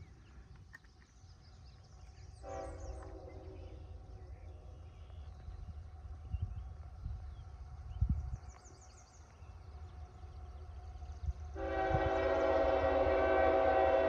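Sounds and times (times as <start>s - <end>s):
distant locomotive horn: 2.4s - 3.9s, 11.5s - 14.0s.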